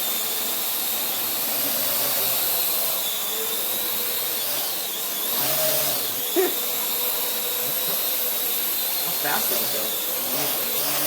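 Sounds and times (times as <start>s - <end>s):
drone rotors whirring: 0.0s - 11.0s.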